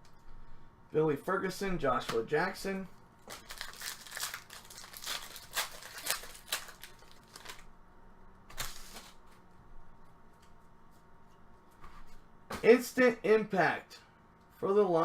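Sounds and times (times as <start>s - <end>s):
card wrappers crinkling: 3.2s - 7.7s, 8.5s - 9.3s.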